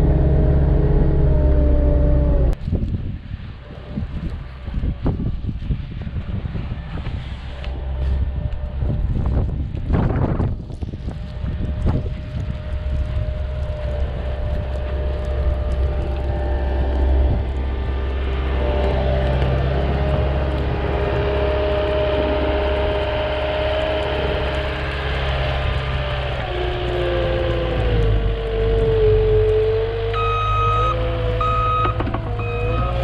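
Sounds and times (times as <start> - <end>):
diesel engine rumbling under load: 0.0 - 2.6, 5.7 - 33.0
hydraulic whine: 0.0 - 2.6, 12.9 - 33.0.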